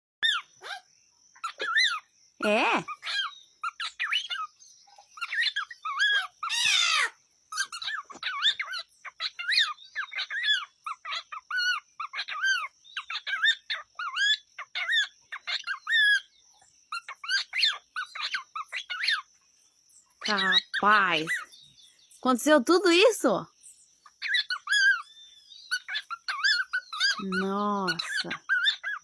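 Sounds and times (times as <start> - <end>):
bird screech: 5.2 - 12.7
cockatiel chattering: 5.2 - 16.2, 16.9 - 19.3, 24.1 - 25.0, 25.7 - 29.0.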